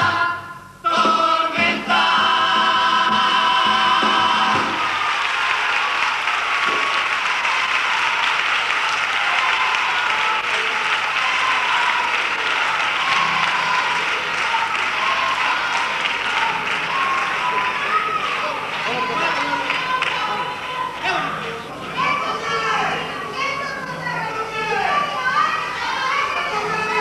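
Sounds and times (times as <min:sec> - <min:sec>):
audience applauding: 0:03.4 - 0:22.4.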